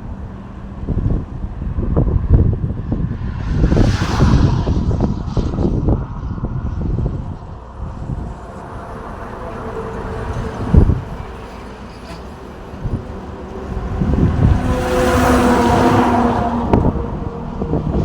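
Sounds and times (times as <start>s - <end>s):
road traffic rumble: 0.0s - 18.0s
vehicle engine approaching: 0.0s - 18.0s.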